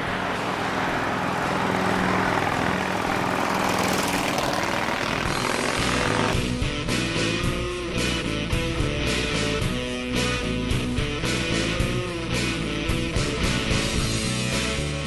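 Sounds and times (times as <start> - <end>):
motorcycle engine: 0.0 - 7.6.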